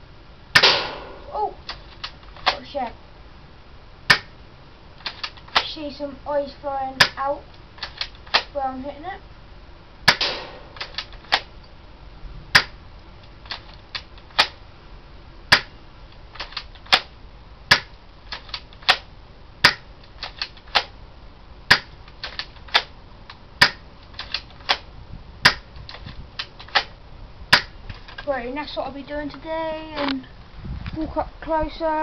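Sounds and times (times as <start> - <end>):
airsoft shotgun shots: 0.6 - 1.3, 10.1 - 11.5, 12.6 - 12.8, 15.5 - 15.8, 17.7 - 17.9, 19.6 - 19.9, 21.7 - 22.0, 27.5 - 27.8.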